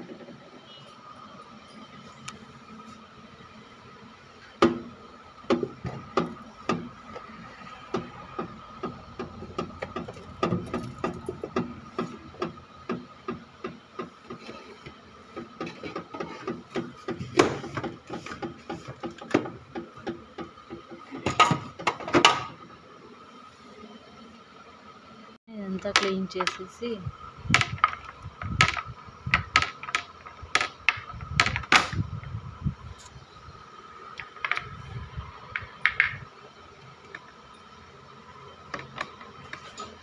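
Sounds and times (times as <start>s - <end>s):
fridge shelves and containers clattering: 21.0s - 22.6s.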